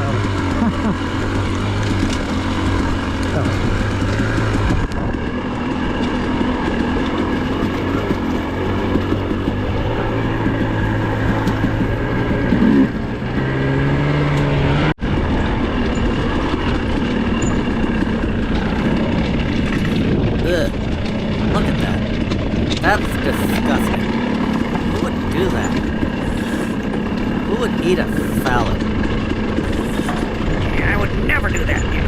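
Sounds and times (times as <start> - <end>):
dirt bike engine running: 0.0 - 32.0.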